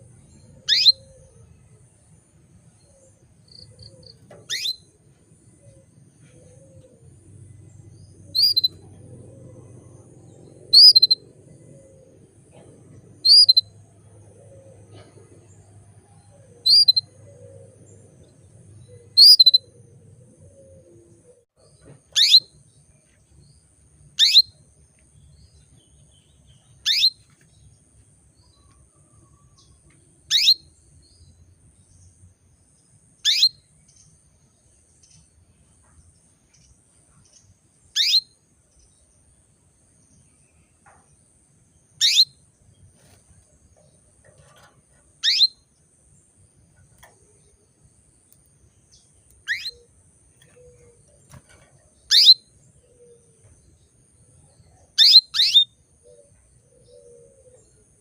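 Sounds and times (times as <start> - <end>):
canary short calls: 49.4 - 49.8.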